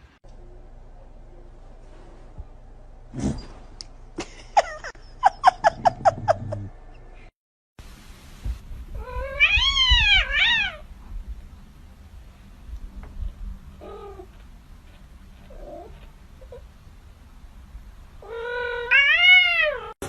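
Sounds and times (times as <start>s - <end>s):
cat meowing: 9.0s - 10.9s, 18.2s - 20.0s.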